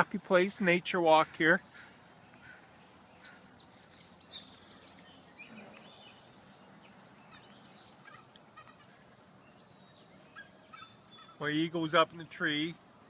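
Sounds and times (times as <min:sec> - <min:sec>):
birds chirping: 0:00.0 - 0:13.0
outdoor hiss: 0:00.0 - 0:13.0
buzzy bird trill: 0:01.6 - 0:11.7.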